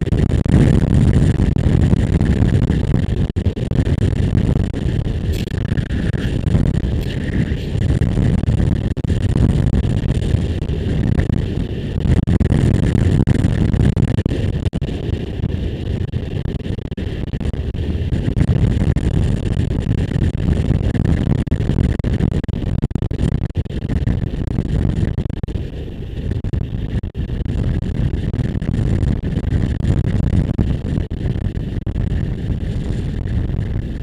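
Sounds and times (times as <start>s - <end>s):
wind buffeting microphone: 0.0s - 16.4s.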